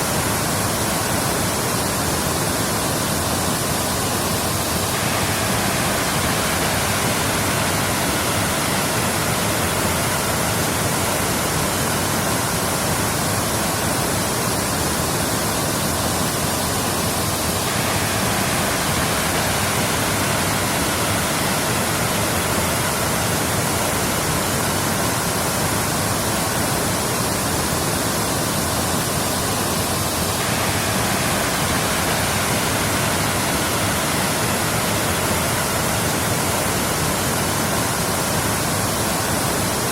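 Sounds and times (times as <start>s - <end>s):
waterfall pouring and splashing: 0.0s - 39.9s.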